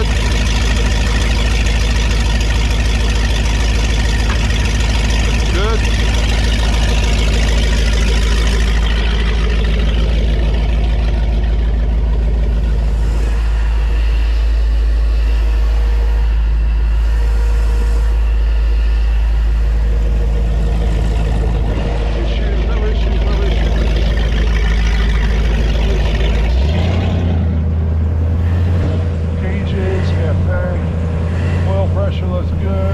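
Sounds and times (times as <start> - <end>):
boat engine running loudly: 0.0 - 32.9.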